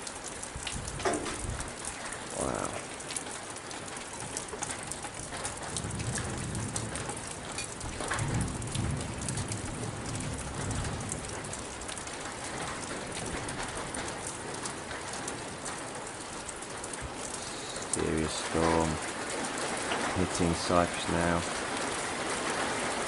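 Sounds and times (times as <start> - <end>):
rain falling steadily: 0.0 - 23.0
drips striking hard surfaces: 1.0 - 2.8, 7.0 - 8.2.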